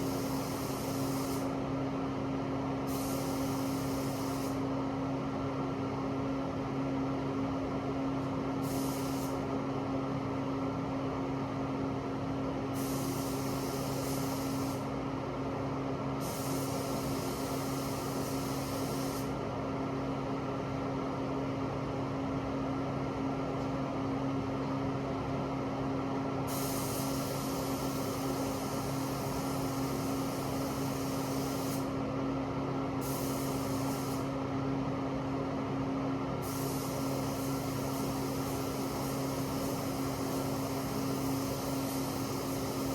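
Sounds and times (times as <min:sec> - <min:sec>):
spray gun hissing: 0:00.0 - 0:01.5, 0:02.9 - 0:04.6, 0:08.6 - 0:09.4, 0:12.8 - 0:14.9, 0:16.2 - 0:19.3, 0:26.5 - 0:31.9, 0:33.0 - 0:34.3, 0:36.4 - 0:42.9.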